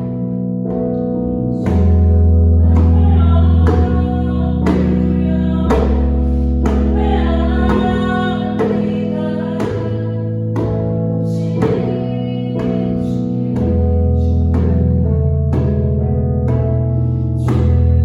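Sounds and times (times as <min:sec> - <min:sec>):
instrumental accompaniment: 0:00.0 - 0:18.0
person singing: 0:01.6 - 0:15.0
djembe strikes: 0:01.6 - 0:16.8, 0:17.4 - 0:18.0.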